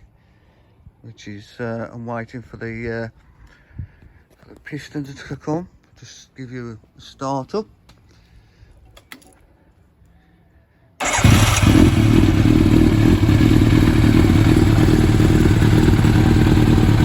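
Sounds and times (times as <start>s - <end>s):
motorcycle engine starting: 11.0s - 17.0s.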